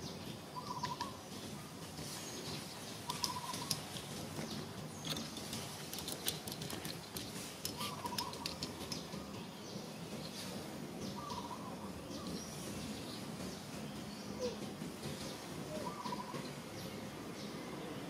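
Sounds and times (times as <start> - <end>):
bird warbling call: 0.6 - 1.2, 3.0 - 3.8, 7.7 - 8.7, 11.1 - 11.9, 15.7 - 16.4.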